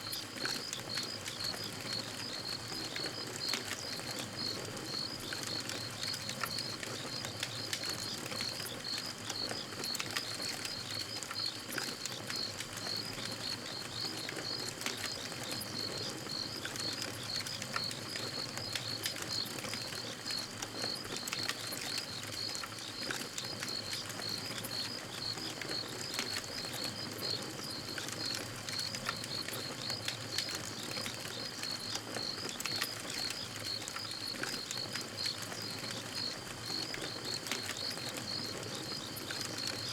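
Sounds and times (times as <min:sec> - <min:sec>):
crickets chirping: 0:12.4 - 0:39.9.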